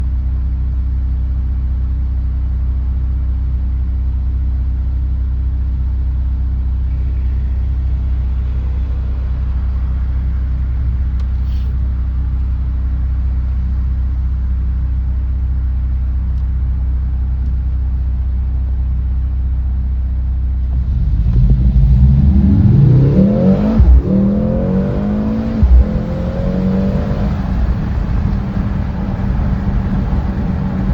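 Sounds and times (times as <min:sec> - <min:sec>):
car engine idling and revving: 0:00.0 - 0:30.9
exhaust cracks: 0:20.6 - 0:30.9.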